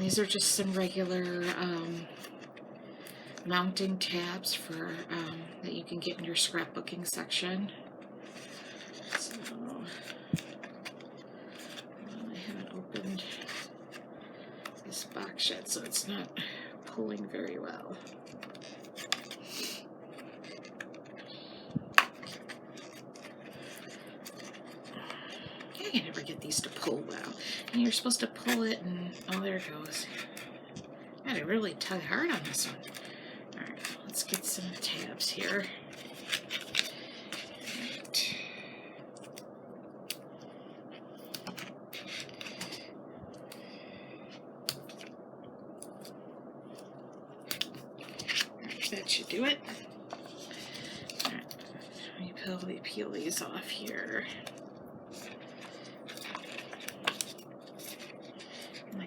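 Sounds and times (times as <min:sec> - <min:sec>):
steady low hum: 0:00.0 - 0:59.0
small clicks and scratches: 0:07.9 - 0:16.2, 0:16.9 - 0:31.0, 0:31.8 - 0:38.2, 0:40.9 - 0:43.6, 0:45.8 - 0:59.0
paper and plastic rustling: 0:08.2 - 0:16.2, 0:17.3 - 0:30.9, 0:31.8 - 0:38.2, 0:41.2 - 0:43.6, 0:47.5 - 0:59.0.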